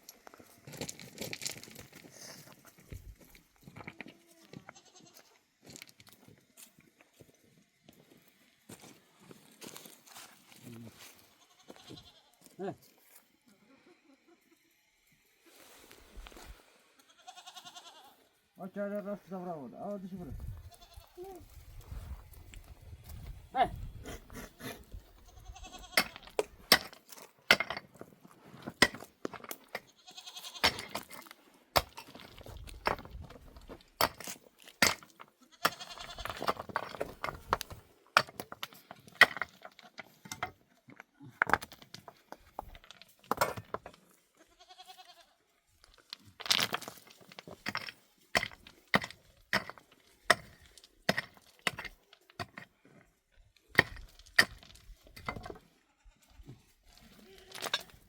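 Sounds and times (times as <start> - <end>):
sheep and goats bleating: 4.2 - 5.4, 11.2 - 12.6, 17.0 - 18.3, 20.6 - 21.4, 24.8 - 26.4, 29.8 - 30.9, 35.3 - 36.4, 44.3 - 45.5, 55.7 - 56.4, 57.0 - 57.9.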